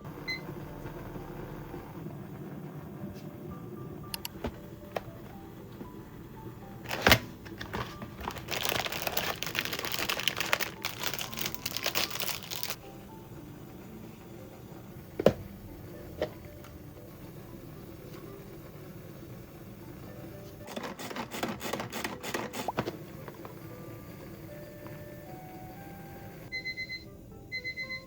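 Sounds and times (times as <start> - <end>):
soft background music: 0.0 - 28.0
crinkling and rustling: 6.8 - 12.8.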